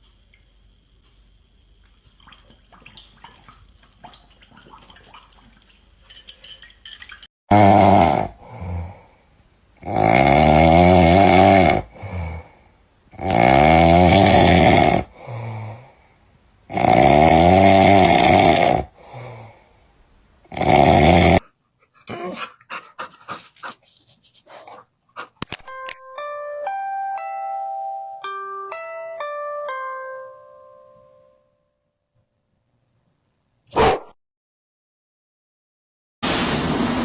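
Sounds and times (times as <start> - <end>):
dog snoring loudly: 7.5 - 9.0, 9.8 - 12.4, 13.1 - 15.2, 16.7 - 19.0, 20.5 - 21.4.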